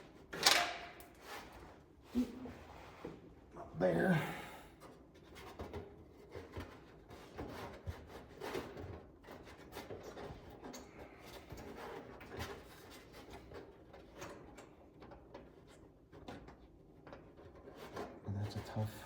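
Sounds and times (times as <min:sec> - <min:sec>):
hands working hardware: 0:00.0 - 0:02.3.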